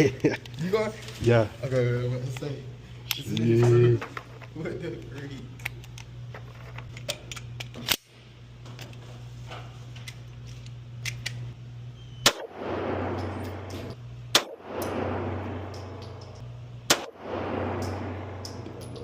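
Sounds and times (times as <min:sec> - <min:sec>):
steady low hum: 0:00.0 - 0:19.0
loud handgun shots: 0:12.2 - 0:16.3, 0:16.9 - 0:18.7.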